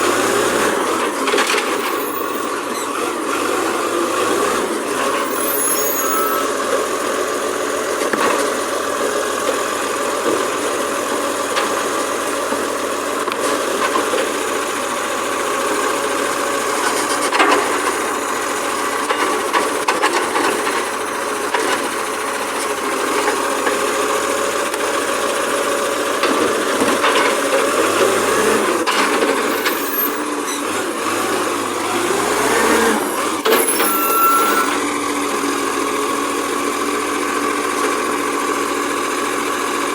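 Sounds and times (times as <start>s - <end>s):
garbage truck engine running: 0.0s - 39.9s
high squeaks: 1.7s - 2.9s, 4.9s - 6.6s, 29.4s - 30.7s, 32.6s - 34.9s.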